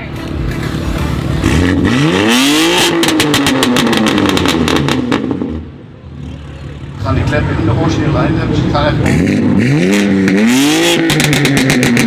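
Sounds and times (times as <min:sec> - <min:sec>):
car engine revving: 0:00.5 - 0:12.0
exhaust pops and bangs: 0:11.0 - 0:12.0.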